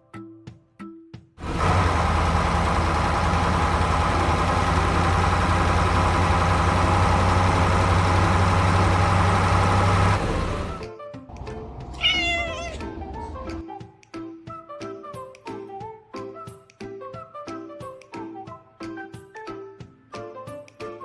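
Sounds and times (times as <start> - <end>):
heavy machine engine running: 1.4 - 12.0.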